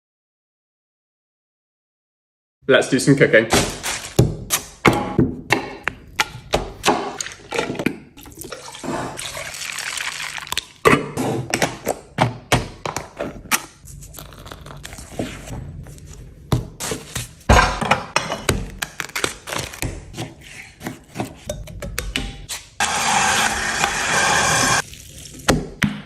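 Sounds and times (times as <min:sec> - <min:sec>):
utensils and cookware clattering: 0:05.5 - 0:09.4, 0:16.8 - 0:22.8
water running: 0:08.2 - 0:10.8.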